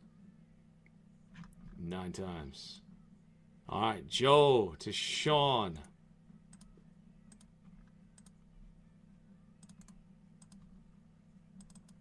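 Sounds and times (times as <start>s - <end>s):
low steady hum: 0.0s - 12.0s
computer clicks: 7.3s - 7.5s, 8.2s - 8.4s, 9.6s - 10.7s, 11.6s - 12.0s.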